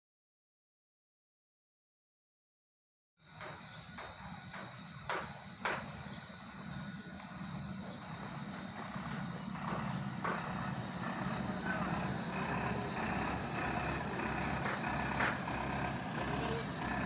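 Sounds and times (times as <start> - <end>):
diesel truck engine running: 3.3 - 17.0.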